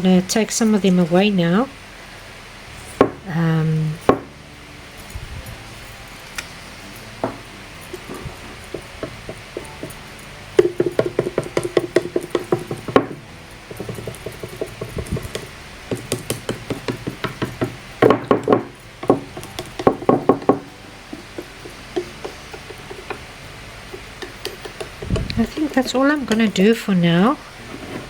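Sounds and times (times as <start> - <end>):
palette knife tapping paste: 6.4 - 23.2, 23.9 - 26.6.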